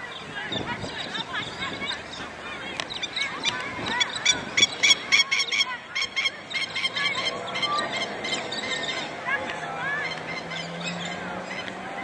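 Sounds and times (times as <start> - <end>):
bird sharp rapid calls: 0.1 - 11.8.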